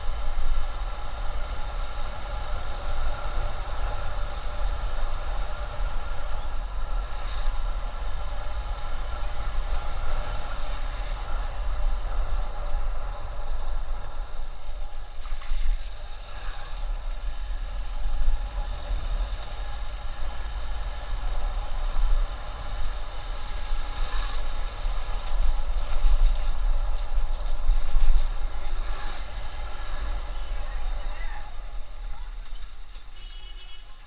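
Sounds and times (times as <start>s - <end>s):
road noise: 0.0s - 34.0s
wind noise: 0.0s - 34.0s.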